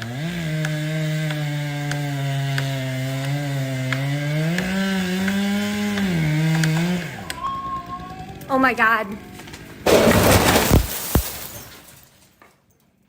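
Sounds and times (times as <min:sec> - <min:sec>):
chainsaw engine running: 0:00.0 - 0:09.9.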